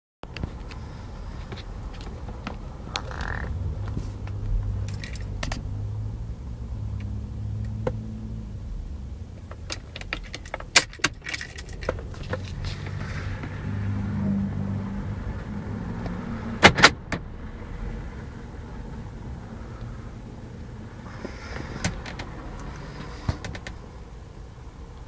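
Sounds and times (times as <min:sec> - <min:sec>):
car keys jangling and clicking: 0:04.8 - 0:05.6, 0:09.6 - 0:12.7.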